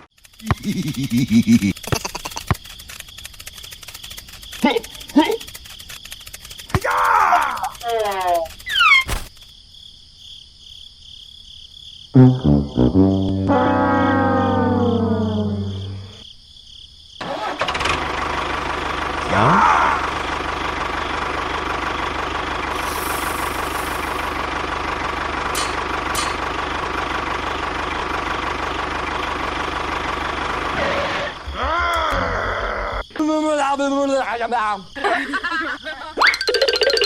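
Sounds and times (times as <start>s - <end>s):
faint clicks: 0.2s - 8.8s
small engine starting and running: 0.2s - 8.9s, 17.2s - 31.5s.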